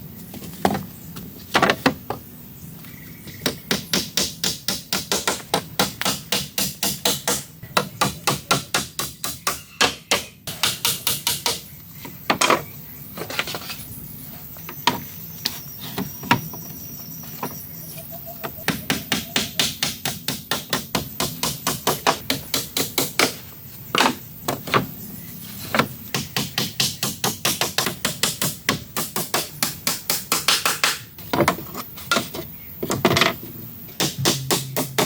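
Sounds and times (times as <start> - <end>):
tool striking wood: 34.0 - 35.0.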